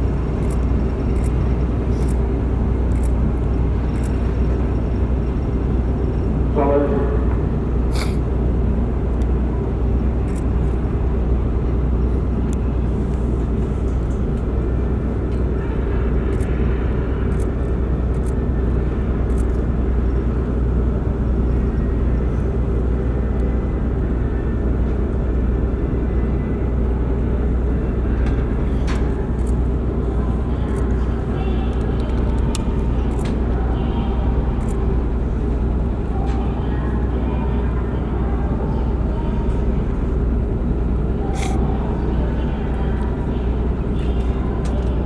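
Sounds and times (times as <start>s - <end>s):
ferry engines rumbling: 0.0s - 45.0s.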